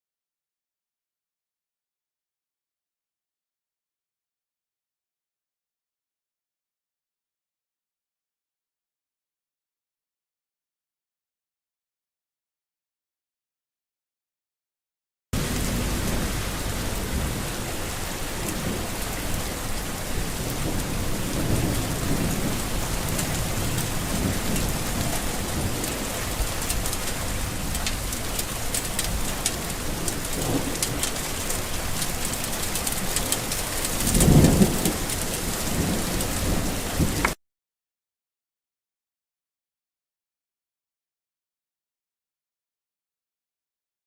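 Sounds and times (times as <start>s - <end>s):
heavy rain: 15.4s - 37.4s
thunder rumbling: 15.4s - 37.4s.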